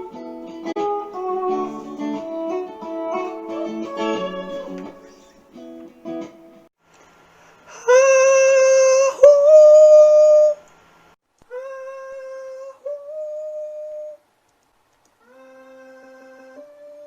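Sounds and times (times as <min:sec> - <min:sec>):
person singing long held notes: 0:00.8 - 0:05.4, 0:15.2 - 0:17.0.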